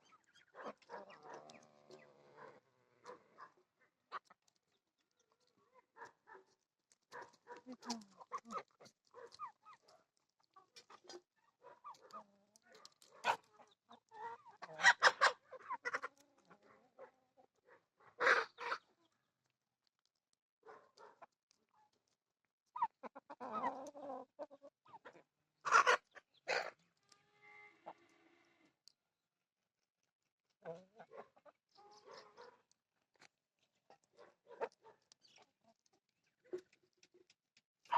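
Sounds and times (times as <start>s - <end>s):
chickens clucking: 0.0s - 6.3s, 7.1s - 17.5s, 18.2s - 19.2s, 22.7s - 27.1s, 30.6s - 32.6s.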